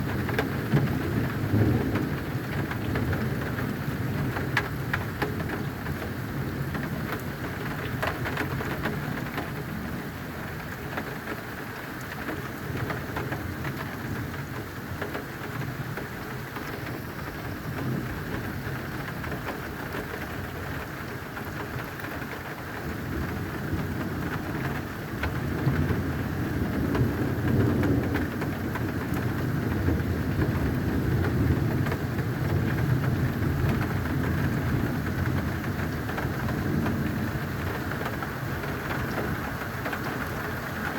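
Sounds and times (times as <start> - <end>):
thunder rumbling: 0.0 - 5.6, 23.0 - 40.9
steady rain: 0.0 - 40.9.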